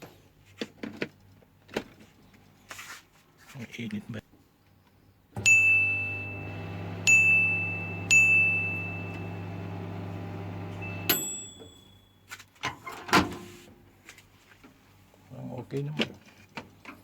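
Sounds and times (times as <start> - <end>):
microwave click and beep: 5.4 - 11.8
microwave keypad beeping: 5.4 - 11.8
microwave oven humming: 5.4 - 11.9.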